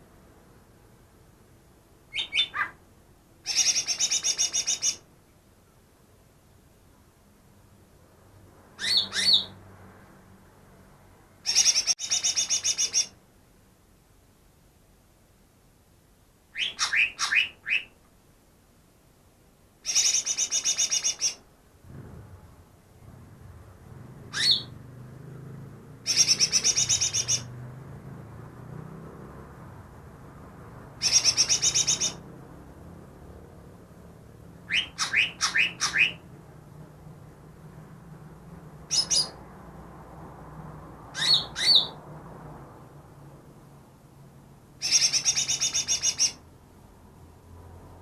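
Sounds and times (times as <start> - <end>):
bird singing: 2.1 - 2.8, 3.4 - 5.0, 8.8 - 9.6, 11.5 - 13.2, 16.6 - 18.0, 19.8 - 21.4, 24.3 - 24.8, 26.1 - 27.6, 31.0 - 32.2, 34.7 - 36.3, 38.9 - 39.4, 41.2 - 42.0, 44.8 - 46.4.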